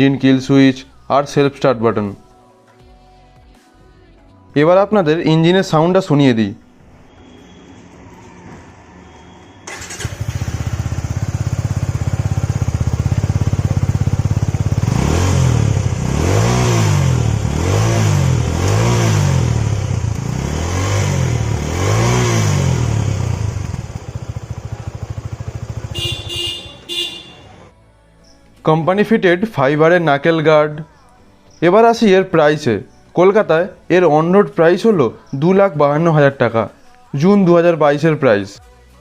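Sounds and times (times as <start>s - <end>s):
electric starter: 9.6s - 11.4s
motorcycle engine idling and revving: 9.6s - 27.7s.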